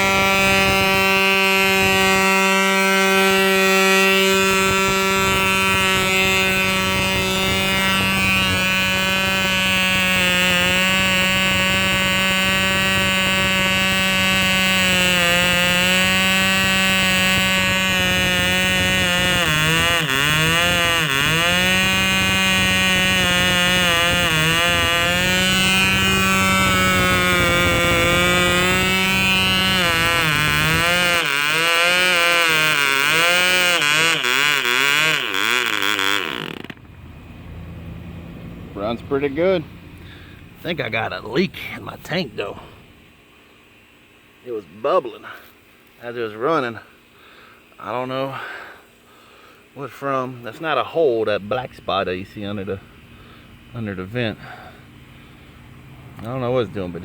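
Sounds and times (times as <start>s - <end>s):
model plane engine buzzing: 0.0s - 43.1s.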